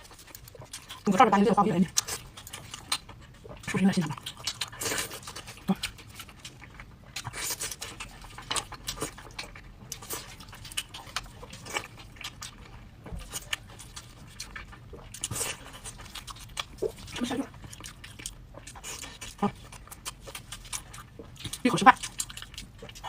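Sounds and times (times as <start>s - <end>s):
person chewing: 0.0s - 23.0s.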